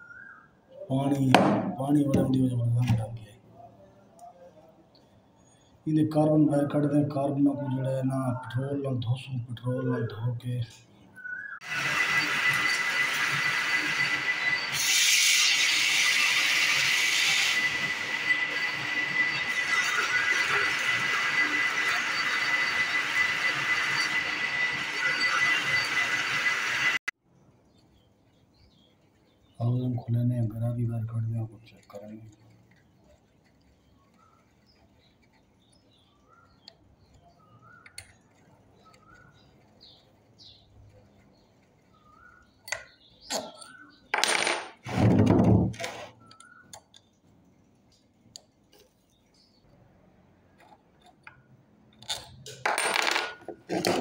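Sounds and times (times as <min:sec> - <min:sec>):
faint short bird chirps: 0:00.0 - 0:00.9
compressed air hissing: 0:14.6 - 0:17.9.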